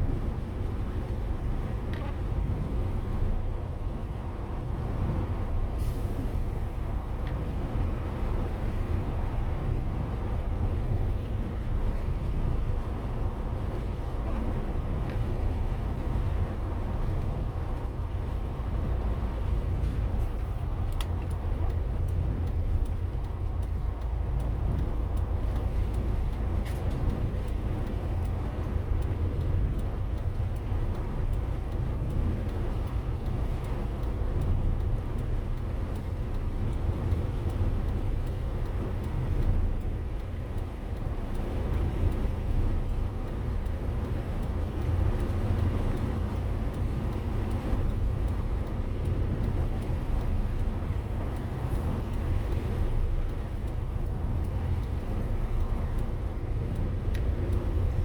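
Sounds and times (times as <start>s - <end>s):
engine and tyres rumbling: 0.0s - 58.0s.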